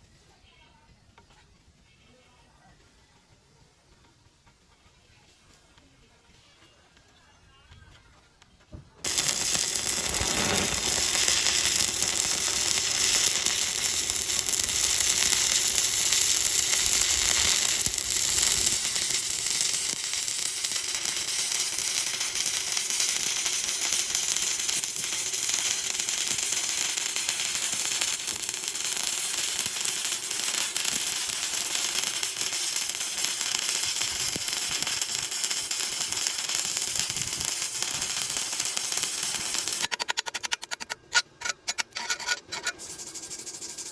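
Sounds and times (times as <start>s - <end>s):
welding arc crackling: 9.0s - 43.9s.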